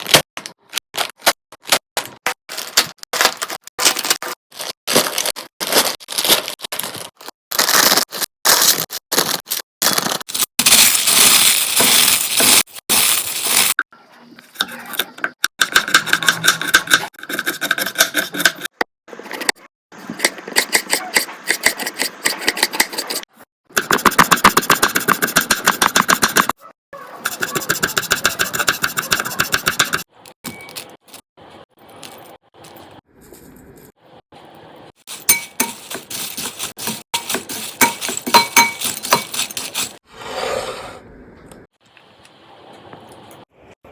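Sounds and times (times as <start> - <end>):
potato chips crunching: 0.0 - 12.4
chip packet crinkling: 0.0 - 13.8, 35.1 - 40.0.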